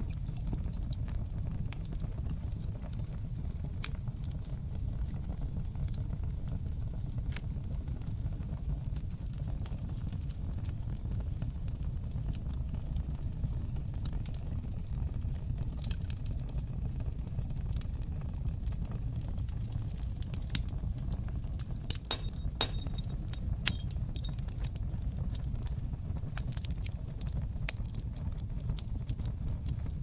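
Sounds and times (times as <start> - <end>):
flames rumbling: 0.0 - 30.0
wood fire popping: 0.0 - 30.0.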